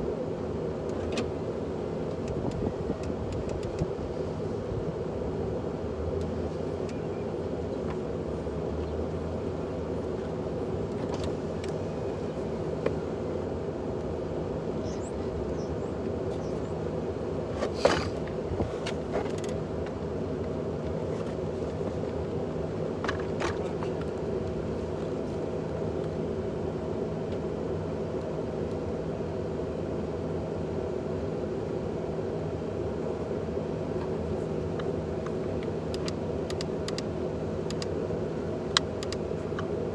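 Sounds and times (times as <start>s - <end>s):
steady mechanical hum: 0.0s - 39.9s.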